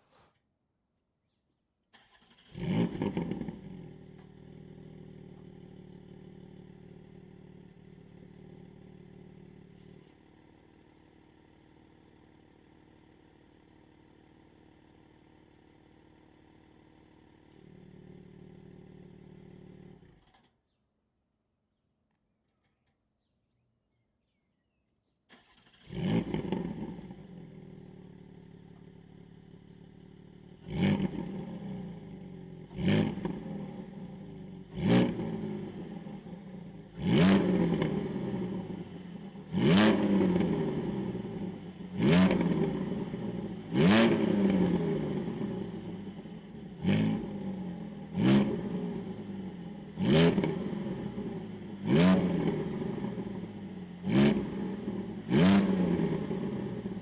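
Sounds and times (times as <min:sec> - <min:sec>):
car engine starting and idling: 0:01.9 - 0:06.0.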